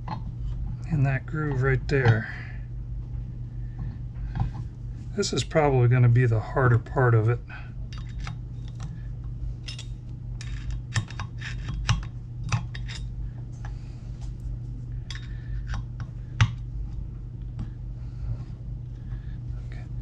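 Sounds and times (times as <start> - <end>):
steady low hum: 0.0 - 20.0
metal clicking and scraping: 9.6 - 13.1.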